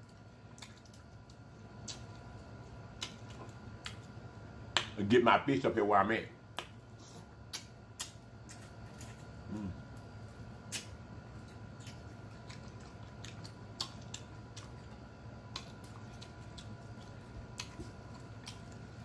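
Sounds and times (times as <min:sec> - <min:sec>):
chewing food: 0:00.0 - 0:04.2, 0:07.5 - 0:19.0
person humming: 0:09.5 - 0:09.8.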